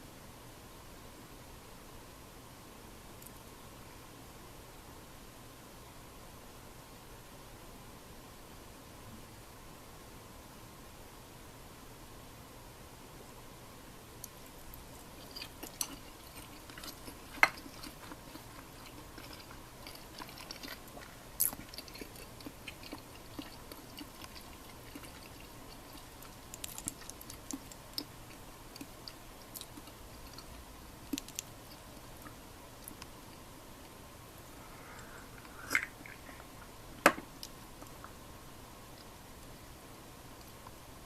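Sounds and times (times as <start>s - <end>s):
faint steady hiss: 0.0s - 41.0s
soft chewing: 14.2s - 38.2s, 38.8s - 39.6s.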